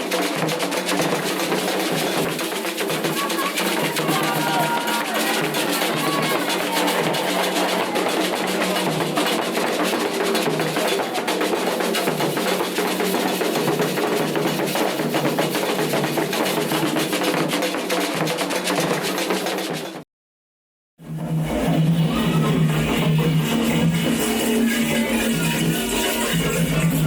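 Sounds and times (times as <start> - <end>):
hand drums playing fast rhythm: 0.0 - 20.0.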